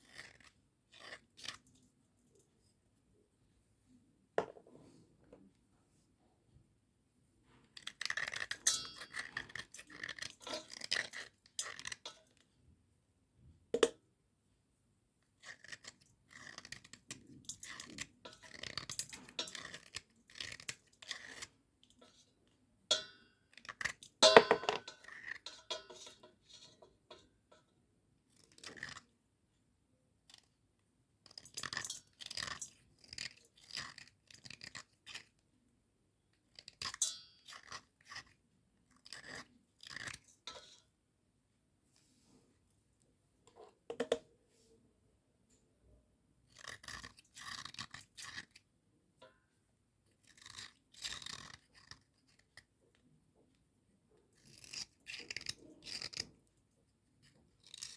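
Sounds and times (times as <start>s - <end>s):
slate pencils scraping and crunching: 0.0s - 1.7s, 7.8s - 12.2s, 15.4s - 22.4s, 28.3s - 29.1s, 31.2s - 35.4s, 36.5s - 40.8s, 46.5s - 48.6s, 50.2s - 52.7s, 54.3s - 56.5s.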